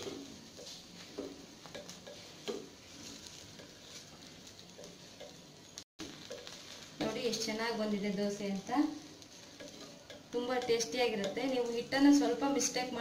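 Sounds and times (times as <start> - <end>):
faint sizzle of frying: 0.0 - 13.0
small crackles and ticks: 1.6 - 12.0.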